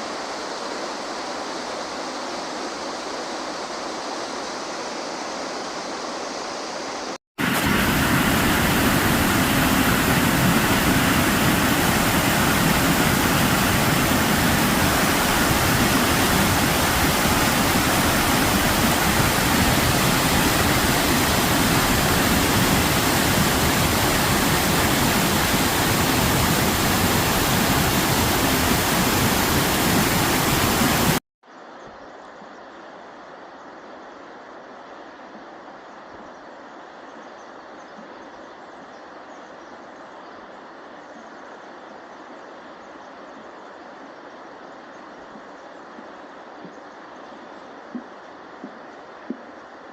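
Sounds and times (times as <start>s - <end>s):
waterfall rushing: 4.6s - 31.2s.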